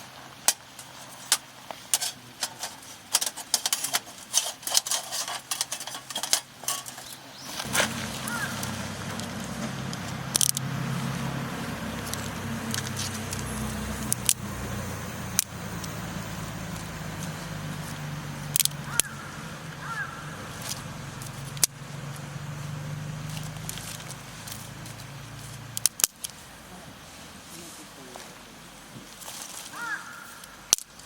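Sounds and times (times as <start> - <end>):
steady low hum: 7.6 - 28.1.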